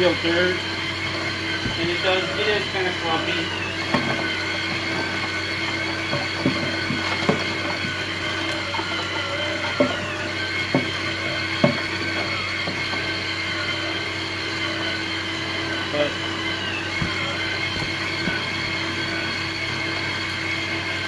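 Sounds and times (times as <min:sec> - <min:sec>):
electric motors whining: 0:00.0 - 0:21.0
dirt clumps knocking: 0:01.6 - 0:02.5, 0:16.1 - 0:19.4.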